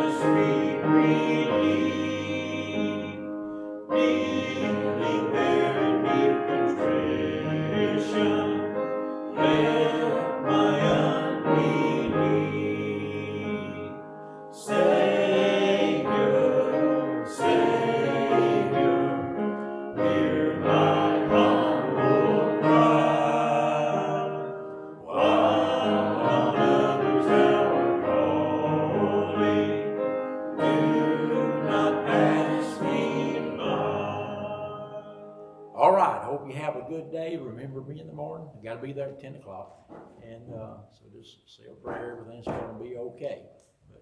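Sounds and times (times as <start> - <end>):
congregation singing a hymn: 0.0 - 36.8.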